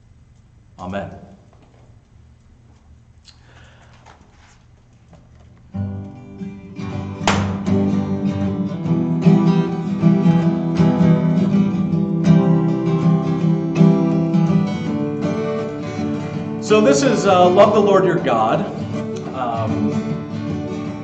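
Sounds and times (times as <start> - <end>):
acoustic guitar strumming: 5.7 - 21.0.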